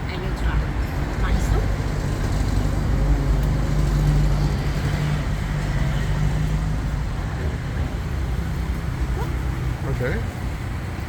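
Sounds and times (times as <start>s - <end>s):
road traffic: 0.0s - 11.0s
vehicle engine droning: 0.7s - 11.0s.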